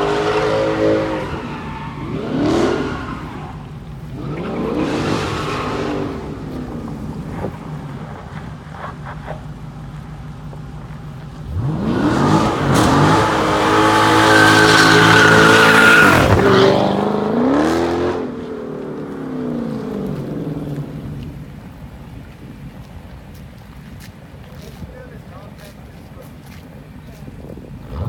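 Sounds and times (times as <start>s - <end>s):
car engine revving hard: 0.0s - 8.0s, 11.4s - 18.8s.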